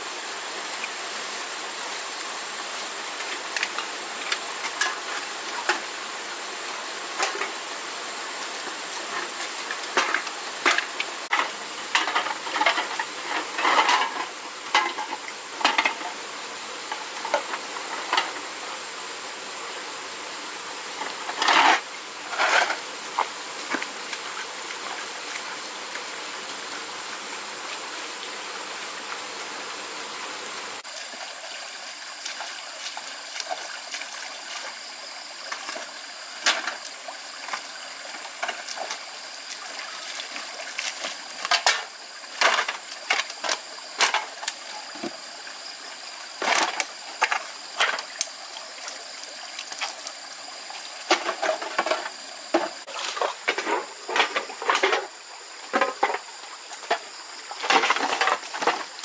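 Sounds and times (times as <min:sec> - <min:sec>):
water running: 0:30.6 - 0:59.0
short splashes and knocks: 0:51.0 - 0:59.0.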